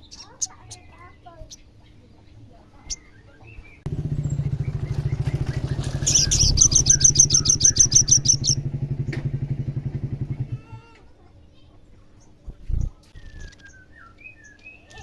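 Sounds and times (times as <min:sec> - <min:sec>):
engine low pulsing: 0:03.8 - 0:10.9
bird rattling trill: 0:03.9 - 0:10.7.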